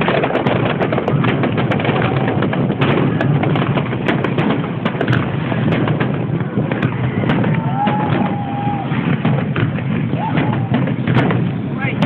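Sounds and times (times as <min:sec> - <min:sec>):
dense din of fireworks: 0:00.0 - 0:12.0
fireworks popping and crackling: 0:00.0 - 0:12.0.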